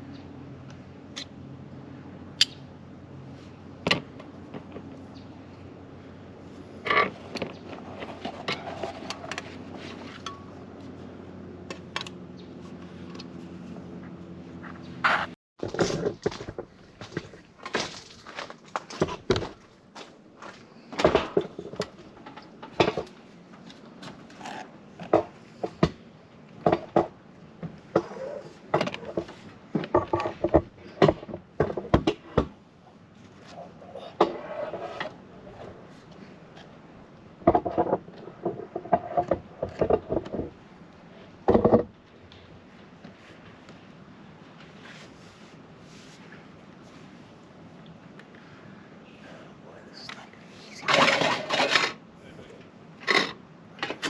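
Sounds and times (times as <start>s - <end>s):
knocks taps and scrapes: 37.4s - 40.6s.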